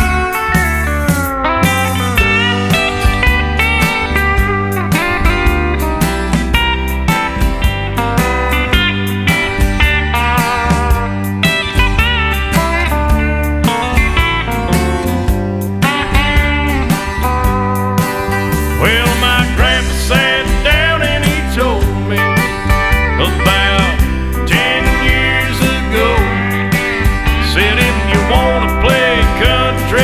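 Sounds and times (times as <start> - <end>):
country music with steel guitar: 0.0 - 30.0.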